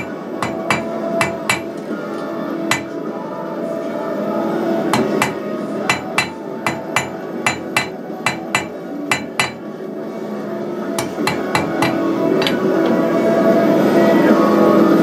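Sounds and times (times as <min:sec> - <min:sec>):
hammer striking steel on anvil: 0:00.0 - 0:01.8, 0:02.7 - 0:03.0, 0:04.9 - 0:09.7, 0:11.0 - 0:12.6.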